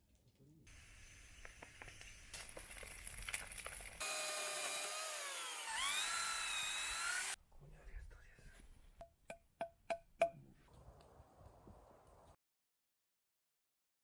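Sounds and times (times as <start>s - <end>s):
power tool cutting into wood: 4.0s - 7.4s.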